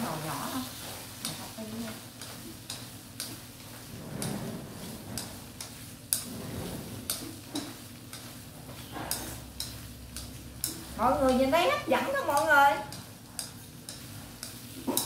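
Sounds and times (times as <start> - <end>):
faint sizzle: 0.0 - 15.0
spoon clicking against a pan: 2.2 - 3.4, 9.1 - 15.0.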